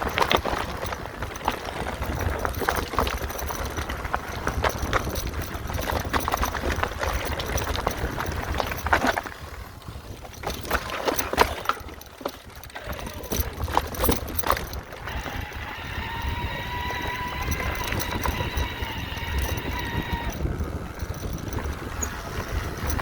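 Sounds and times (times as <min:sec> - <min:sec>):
bike rattling over rocks: 0:00.0 - 0:23.0
wind and tyre rumble: 0:00.0 - 0:23.0.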